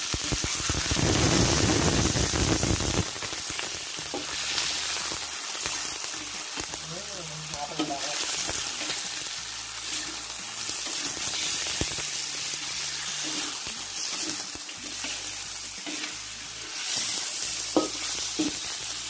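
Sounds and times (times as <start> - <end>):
chicken sizzling in hot oil: 0.0 - 19.0
metal spatula scraping pan: 12.7 - 18.7.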